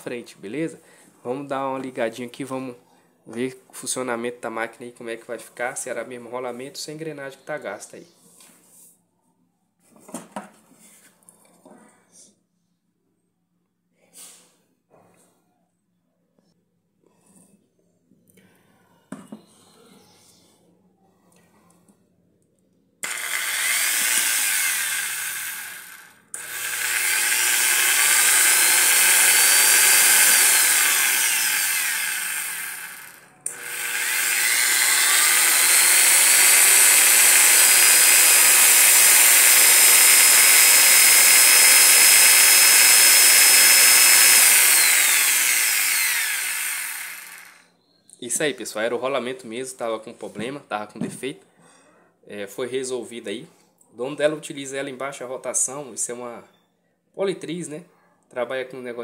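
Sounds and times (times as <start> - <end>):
electric polisher motor whining: 23.0 - 47.6.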